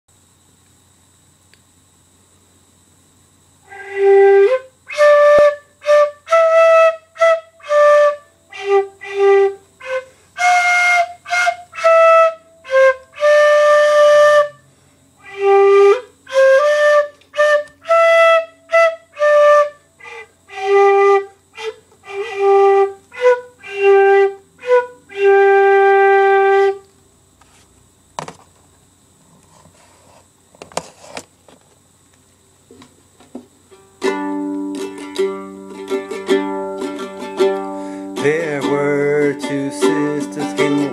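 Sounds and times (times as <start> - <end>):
flute playing a slow waltz: 3.7 - 14.6, 15.2 - 26.8.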